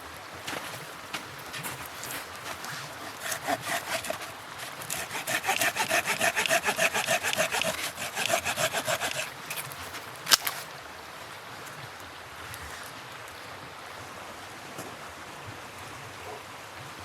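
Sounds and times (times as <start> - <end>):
hand saw cutting wood: 1.5 - 10.6.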